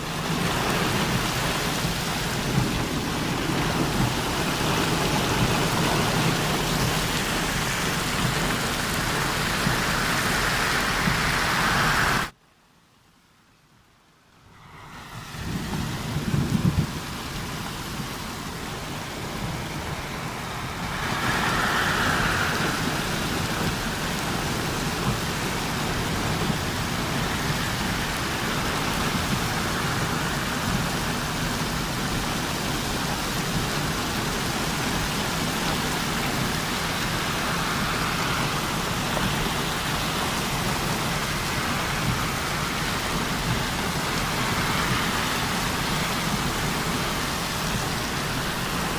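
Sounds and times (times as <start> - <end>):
heavy rain hissing: 0.0 - 12.4, 14.3 - 48.9
low rumble: 14.4 - 31.8.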